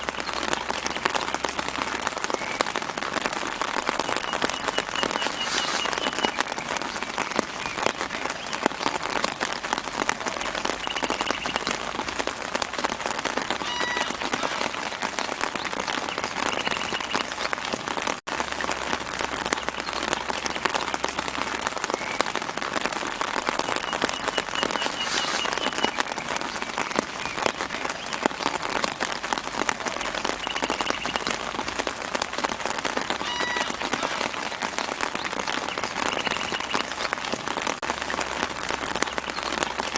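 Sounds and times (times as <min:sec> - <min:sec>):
rain pattering on leaves: 0:00.0 - 0:39.9
faint bird chirps: 0:04.1 - 0:08.5, 0:23.7 - 0:26.3, 0:35.5 - 0:37.0.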